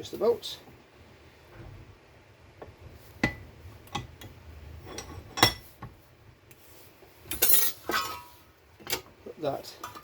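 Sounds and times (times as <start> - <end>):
metal tools clinking and knocking: 7.3 - 9.1.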